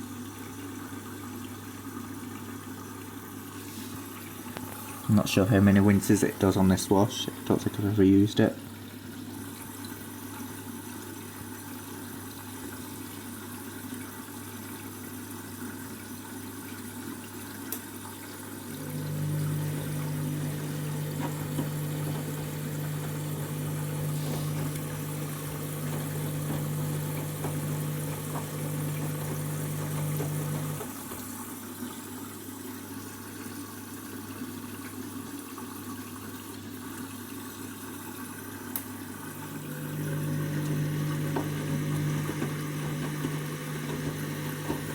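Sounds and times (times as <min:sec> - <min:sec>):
water running into washing machine: 0:00.0 - 0:44.9
washing machine low hum: 0:18.4 - 0:31.6, 0:39.1 - 0:44.9
louder hum: 0:18.8 - 0:30.8, 0:39.3 - 0:44.9.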